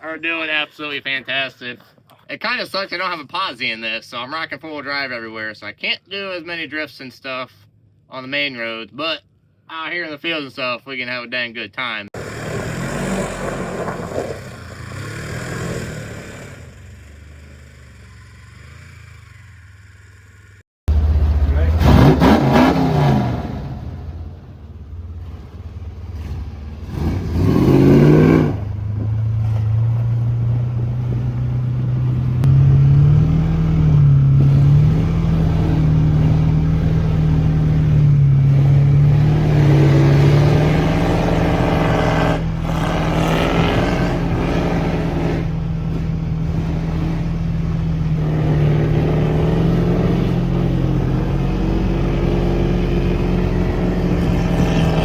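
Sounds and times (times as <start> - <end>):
truck engine revving: 12.2 - 55.0.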